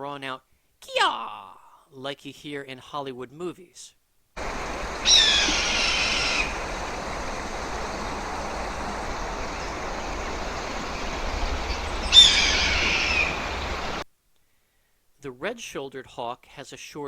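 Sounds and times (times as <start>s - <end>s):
steady background hiss: 3.3s - 17.0s
hawk screaming: 4.5s - 7.2s, 12.0s - 14.0s.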